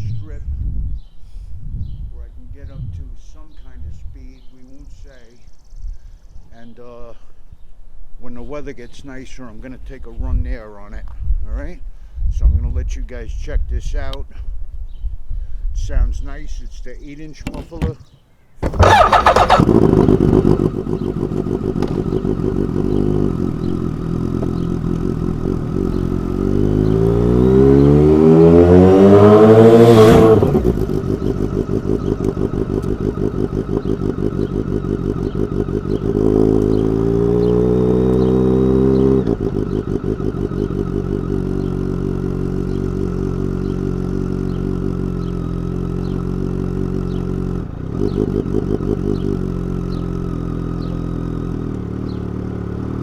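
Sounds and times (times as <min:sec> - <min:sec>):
motorcycle engine accelerating: 0:18.6 - 0:53.0.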